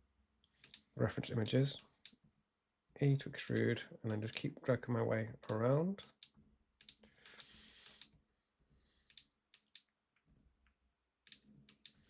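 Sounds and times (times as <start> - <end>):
computer mouse clicks: 0.5 - 2.3, 5.4 - 8.2, 9.1 - 10.0, 11.2 - 12.0.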